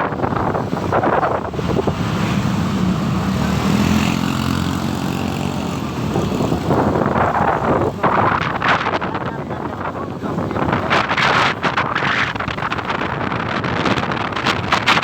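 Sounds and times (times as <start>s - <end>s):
motorcycle engine running: 0.0s - 14.8s
wind rushing over microphone: 0.0s - 15.0s.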